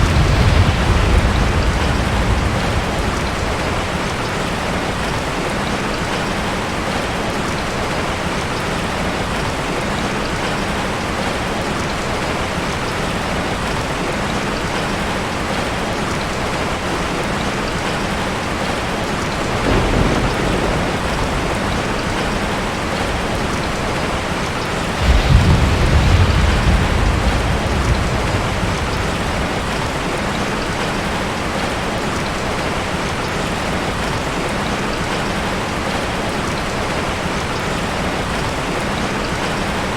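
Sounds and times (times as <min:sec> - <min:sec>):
low thunder rumbles: 0:00.0 - 0:06.2, 0:18.6 - 0:32.0
steady rain falling: 0:00.0 - 0:39.9.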